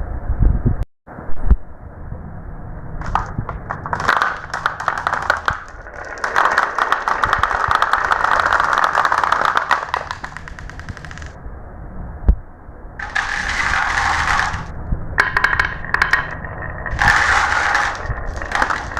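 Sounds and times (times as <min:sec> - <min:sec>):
marbles rolling and clacking: 0:03.0 - 0:11.4, 0:13.0 - 0:18.9.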